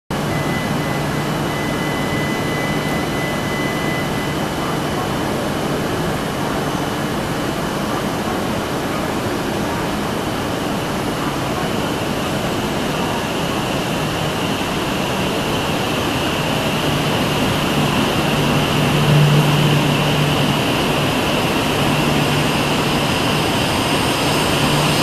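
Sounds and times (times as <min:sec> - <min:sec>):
second high tone: 0:00.1 - 0:05.1, 0:16.6 - 0:25.0
high whine: 0:00.1 - 0:07.8, 0:11.9 - 0:25.0
fans hissing and humming: 0:00.1 - 0:25.0
train moving off: 0:00.1 - 0:25.0.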